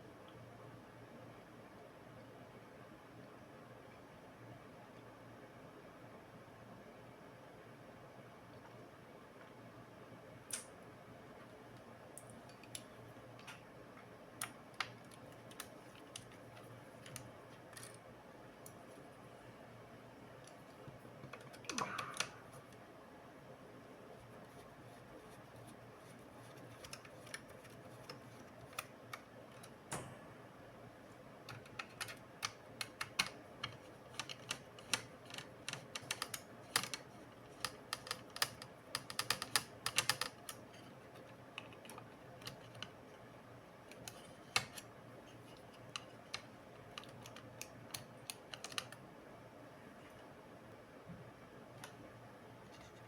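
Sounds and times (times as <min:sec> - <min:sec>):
laptop clicks and taps: 0:37.6 - 0:40.6, 0:46.0 - 0:49.0.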